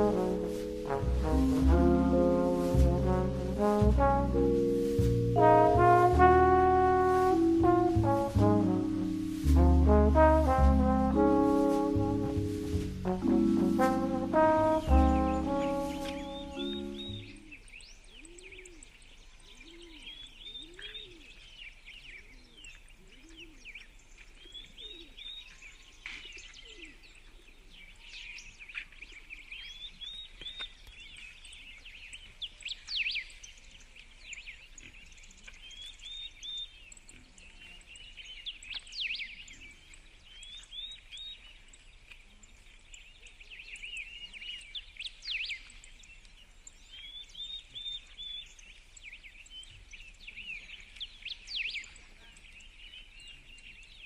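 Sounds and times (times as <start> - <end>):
birds chirping and singing: 14.1 - 21.0.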